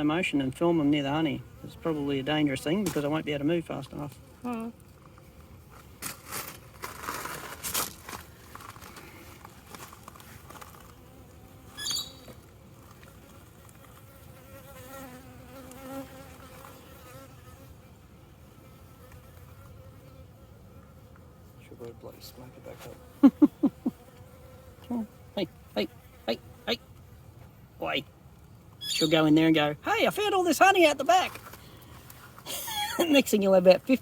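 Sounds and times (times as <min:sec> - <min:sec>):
bees buzzing: 0:08.1 - 0:21.4, 0:22.1 - 0:26.8.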